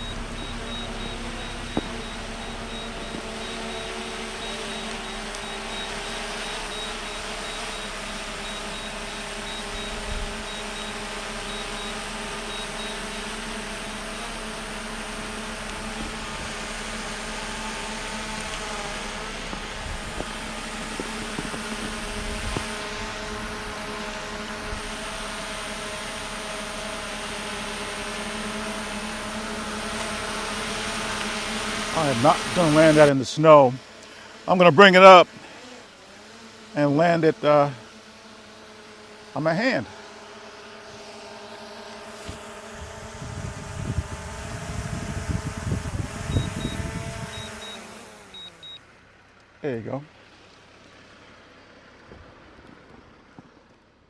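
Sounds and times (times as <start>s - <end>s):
short high beeps: 0.0s - 13.2s, 46.3s - 48.8s
drone propellers humming: 0.0s - 54.0s.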